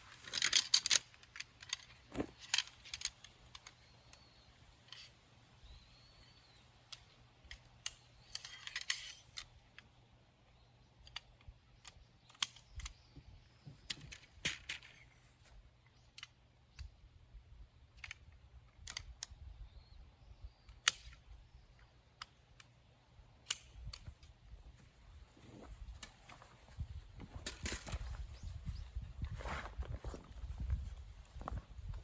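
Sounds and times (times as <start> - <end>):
small clicks and knocks: 0.2 - 5.1, 6.9 - 17.0, 17.9 - 19.4, 20.6 - 22.8
rustling: 24.7 - 31.8.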